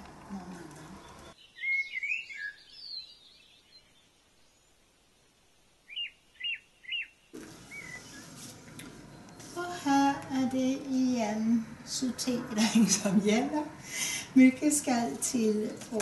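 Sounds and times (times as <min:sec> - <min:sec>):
small songbird chirping: 0:00.8 - 0:04.8, 0:05.8 - 0:08.3.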